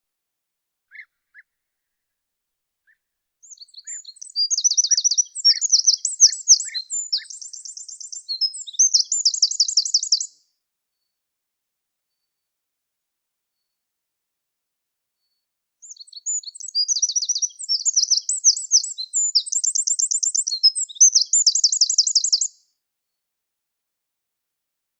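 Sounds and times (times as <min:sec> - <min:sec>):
songbirds singing trills: 0:02.9 - 0:10.4, 0:15.8 - 0:22.6.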